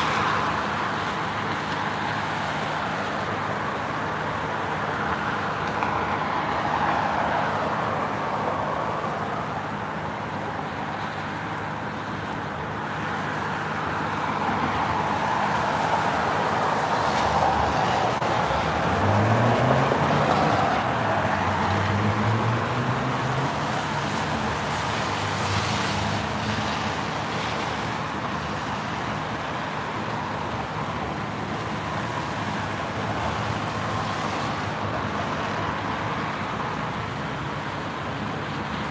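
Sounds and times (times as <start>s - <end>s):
tyre hiss from passing cars: 14.6s - 38.8s.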